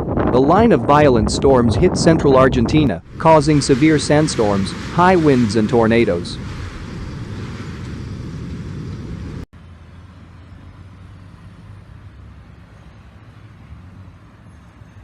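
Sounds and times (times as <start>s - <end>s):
strong wind rushing: 0.0s - 9.5s.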